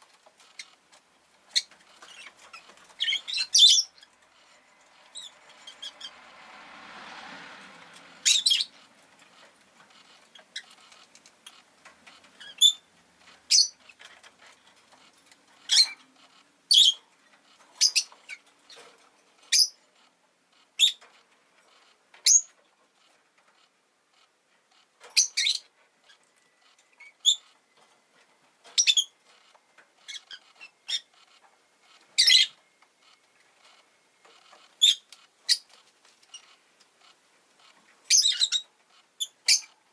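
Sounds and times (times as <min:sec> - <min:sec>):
low street noise: 0:00.0 - 0:39.9
lovebird chirping: 0:01.5 - 0:06.2, 0:08.2 - 0:08.9, 0:12.4 - 0:12.9, 0:13.5 - 0:14.0, 0:15.6 - 0:17.0, 0:17.7 - 0:18.8, 0:19.4 - 0:19.8, 0:20.8 - 0:21.0, 0:22.2 - 0:22.5, 0:25.2 - 0:27.6, 0:28.8 - 0:29.2, 0:30.0 - 0:31.2, 0:32.2 - 0:33.8, 0:34.8 - 0:35.7, 0:38.1 - 0:39.8.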